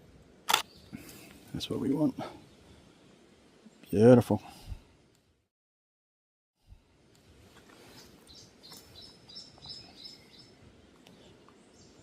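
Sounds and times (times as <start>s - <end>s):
birds chirping: 0.5s - 4.4s, 7.8s - 12.0s
rainforest ambience: 6.9s - 12.0s.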